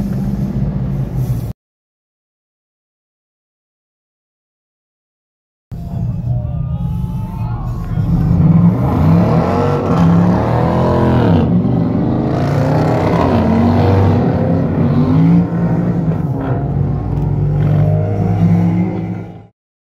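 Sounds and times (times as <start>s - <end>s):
car engines revving: 0.0s - 1.5s, 5.8s - 19.5s
deep engine drone: 0.0s - 1.5s, 5.7s - 19.5s.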